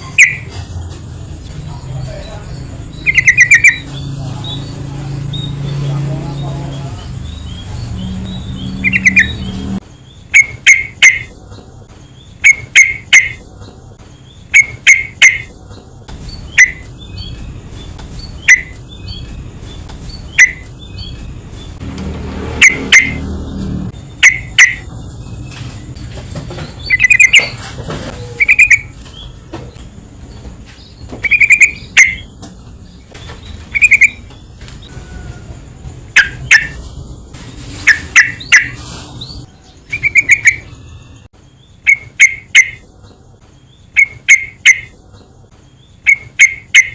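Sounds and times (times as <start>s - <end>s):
bird chirping: 0.0s - 35.2s, 36.1s - 46.9s.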